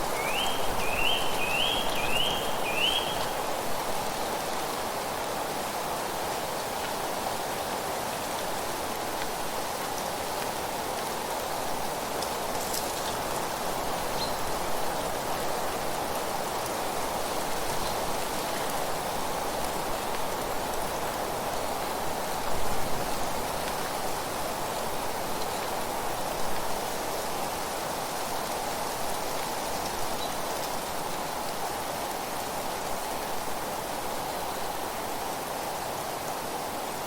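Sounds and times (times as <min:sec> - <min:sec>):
leaves rustling: 0:00.0 - 0:05.2, 0:08.7 - 0:27.5.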